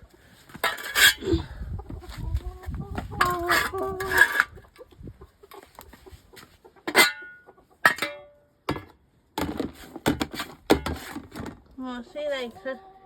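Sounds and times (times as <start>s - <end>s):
tapping and scraping: 6.9s - 11.7s.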